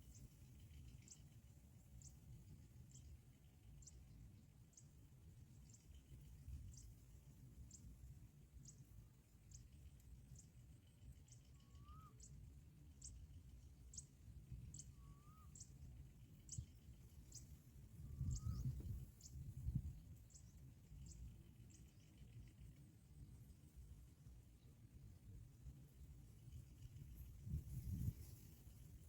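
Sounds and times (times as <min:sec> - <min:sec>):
small bird ticking calls: 0:00.0 - 0:24.7.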